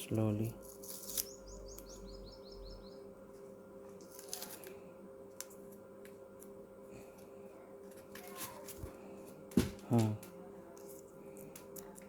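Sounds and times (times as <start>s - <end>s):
faint steady hum: 0.0s - 12.0s
bird chirping: 1.1s - 3.1s.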